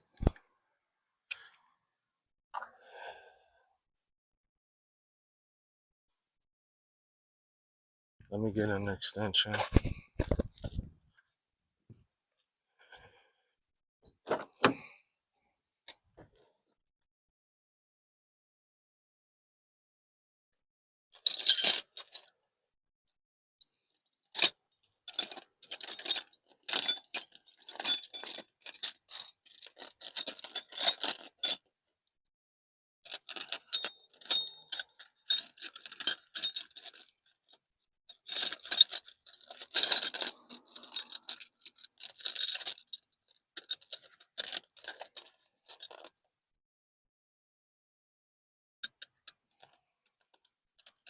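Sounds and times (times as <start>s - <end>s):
metal tools clinking: 25.1s - 31.6s, 33.1s - 37.3s, 38.1s - 43.0s.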